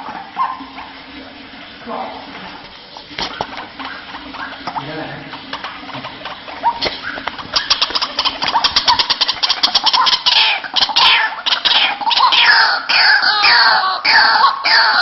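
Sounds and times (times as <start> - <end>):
bird calling harsh notes: 6.6 - 15.0.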